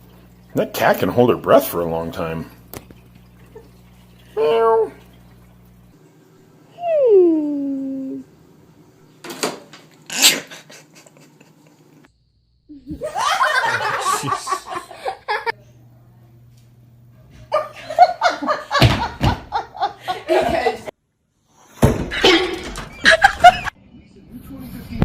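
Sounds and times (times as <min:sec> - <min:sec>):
people laughing: 0:10.3 - 0:12.0, 0:12.8 - 0:15.6, 0:17.3 - 0:20.9, 0:22.1 - 0:23.8.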